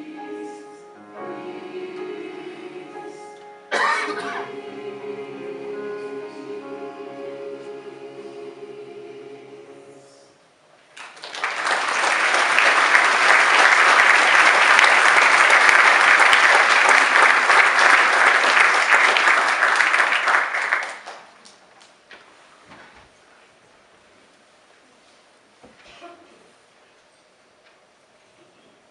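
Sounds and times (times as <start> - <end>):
held musical chord: 0.0 - 10.4
audience applauding: 10.9 - 21.5.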